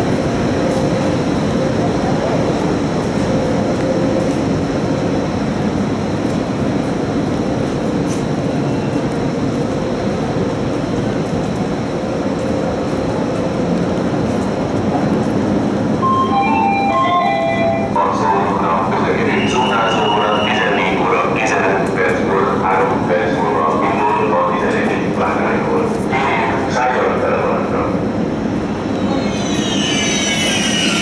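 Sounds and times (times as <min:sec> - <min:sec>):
mechanical rumble of standing trains: 0:00.0 - 0:31.0
public address chime: 0:16.0 - 0:21.8.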